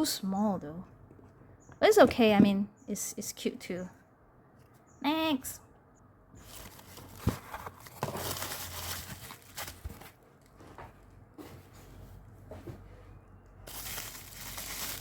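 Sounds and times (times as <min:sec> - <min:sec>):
packaging crinkling and rustling: 0:06.4 - 0:11.1, 0:13.6 - 0:15.0.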